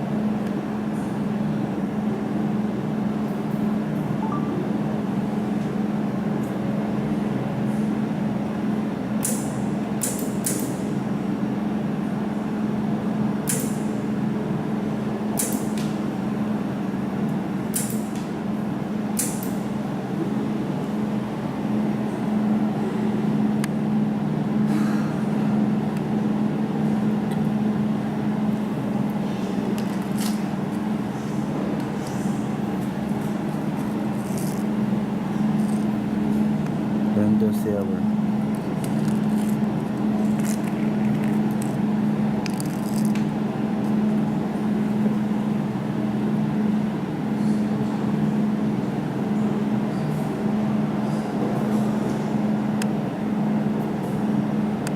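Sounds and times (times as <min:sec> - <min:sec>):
laser welding machine humming: 0:25.7 - 0:47.3.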